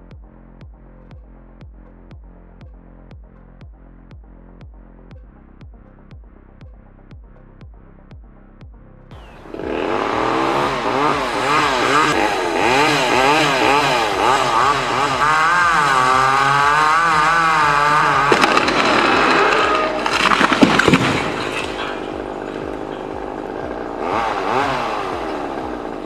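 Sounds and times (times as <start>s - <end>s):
chainsaw engine cutting: 9.1s - 26.0s
sharp cracking: 9.2s - 26.0s.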